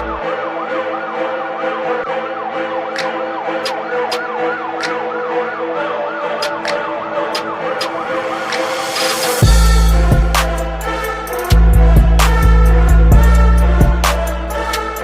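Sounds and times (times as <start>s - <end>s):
siren yelping: 0.0s - 15.0s
sharp ticks in a regular beat: 9.4s - 15.0s.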